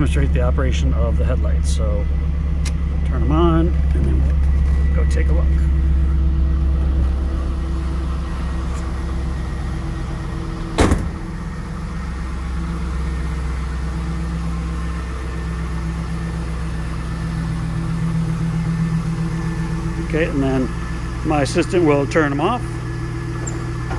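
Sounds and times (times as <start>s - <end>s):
car engine idling: 0.0s - 23.9s
car door shutting: 10.2s - 11.7s, 23.3s - 23.9s.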